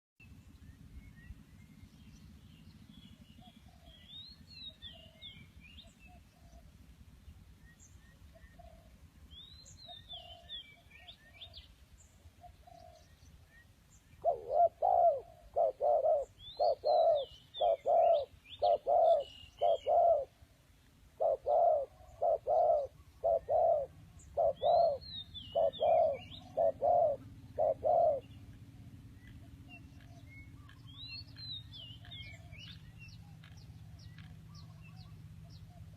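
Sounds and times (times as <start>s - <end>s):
bird hooting coo-like notes: 2.4s - 7.0s, 7.9s - 35.9s
high bird chirping: 21.2s - 28.5s.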